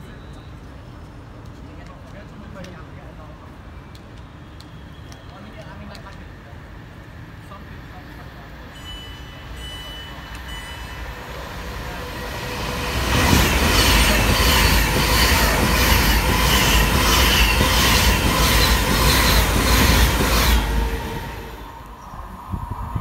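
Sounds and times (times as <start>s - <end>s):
electric train passing at speed: 3.2s - 23.0s
train wheel clatter: 12.0s - 21.2s.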